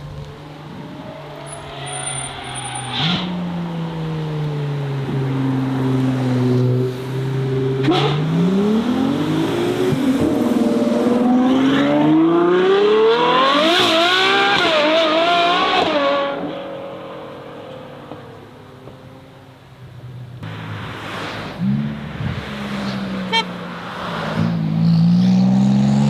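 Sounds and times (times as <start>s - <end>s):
car accelerating away: 23.8s - 26.0s.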